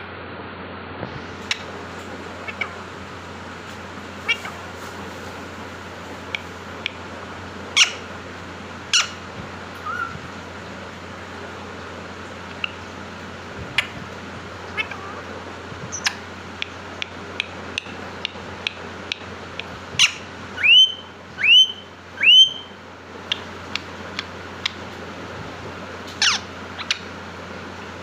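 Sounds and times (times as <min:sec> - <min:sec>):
parrot chirping and clicking: 0:01.4 - 0:02.8, 0:06.1 - 0:07.0, 0:07.7 - 0:08.0, 0:08.8 - 0:09.2, 0:12.4 - 0:12.9, 0:13.7 - 0:14.1, 0:15.8 - 0:25.0, 0:26.1 - 0:27.2
parrot whistles: 0:09.8 - 0:10.2, 0:20.0 - 0:22.8.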